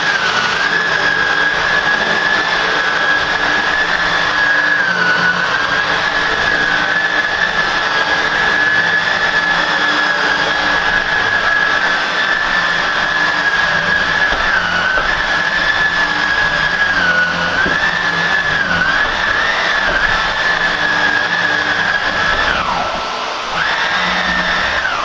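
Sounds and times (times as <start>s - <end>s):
upright vacuum cleaner whine: 0.0s - 25.0s.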